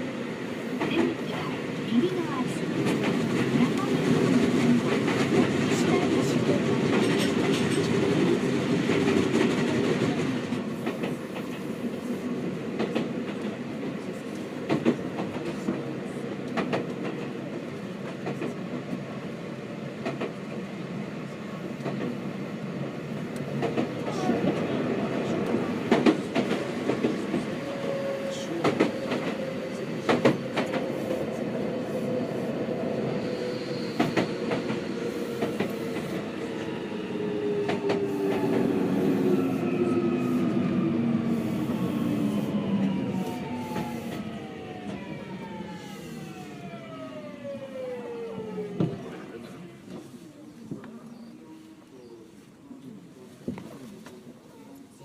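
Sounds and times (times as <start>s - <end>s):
train running rumble: 0.6s - 18.9s.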